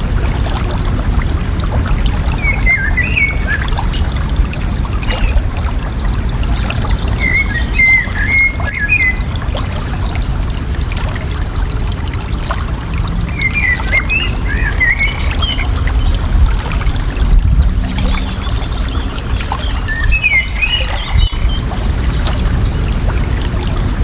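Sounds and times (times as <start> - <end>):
water trickling: 0.0 - 24.0
birds twittering: 13.4 - 24.0.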